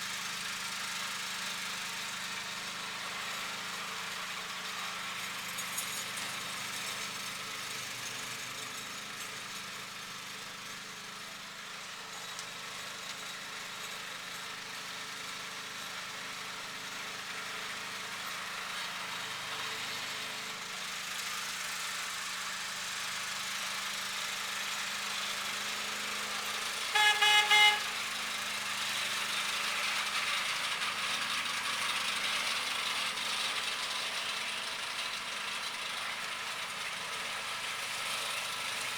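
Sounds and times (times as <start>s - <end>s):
lawn tractor engine running: 0.0s - 38.9s
horn toots: 26.9s - 28.0s.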